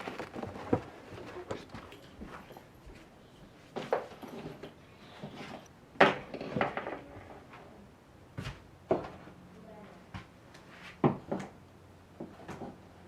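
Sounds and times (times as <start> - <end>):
objects knocking and clattering: 0.0 - 2.6, 6.0 - 7.3.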